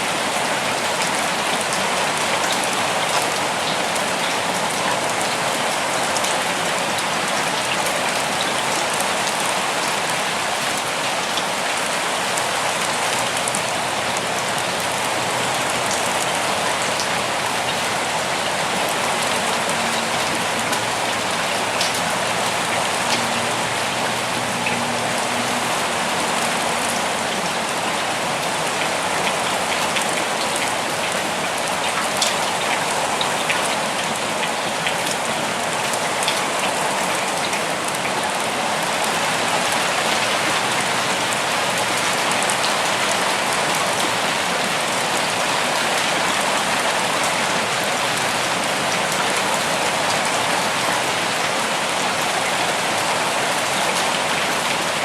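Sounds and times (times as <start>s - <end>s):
steady rain falling: 0.0s - 55.0s
raindrops ticking: 13.2s - 25.6s.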